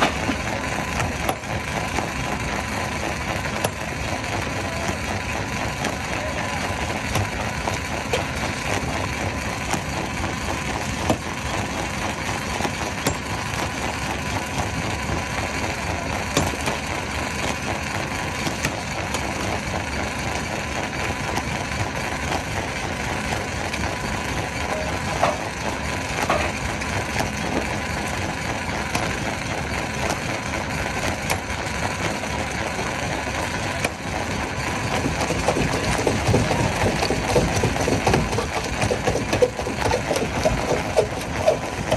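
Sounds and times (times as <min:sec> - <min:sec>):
stone crusher breaking rock: 0:34.8 - 0:41.9.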